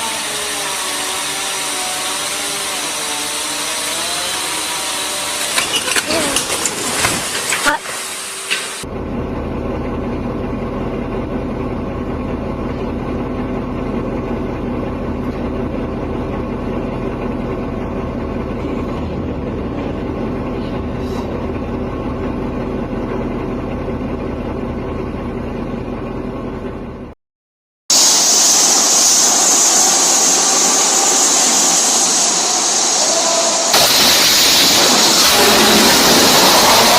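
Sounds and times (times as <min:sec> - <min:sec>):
engine running with hum: 0:08.4 - 0:27.2
loud even rushing noise: 0:27.9 - 0:36.9.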